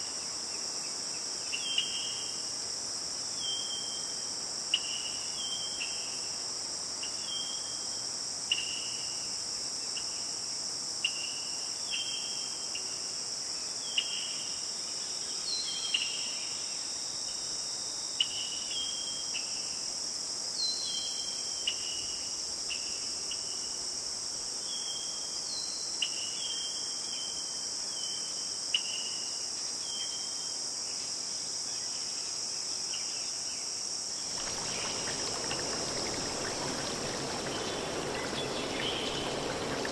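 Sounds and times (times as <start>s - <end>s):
crickets and insects chorus: 0.0s - 39.9s
short chirping calls: 34.4s - 39.9s.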